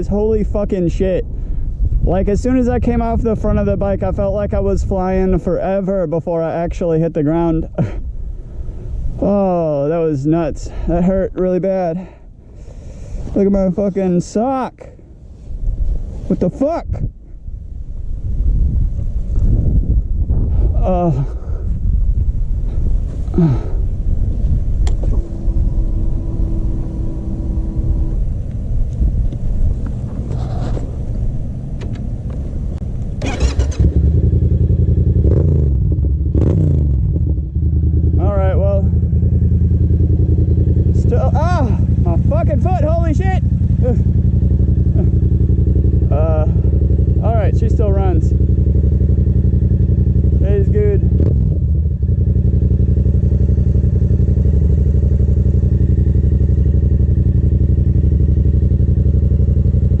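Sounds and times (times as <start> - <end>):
motorcycle engine idling: 16.6 - 60.0.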